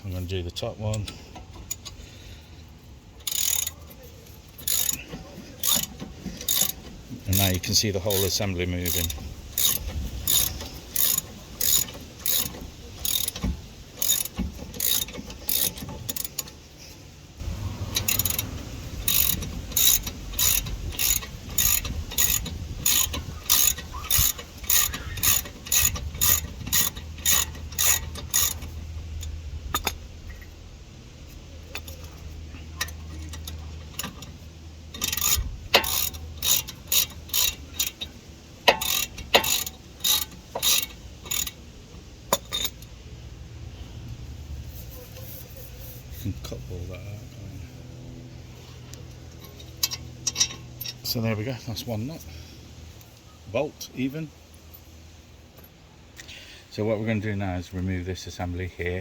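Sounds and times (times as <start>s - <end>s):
socket ratchet clicking: 3.2s - 3.9s, 4.6s - 16.6s, 17.9s - 30.0s, 34.9s - 41.6s.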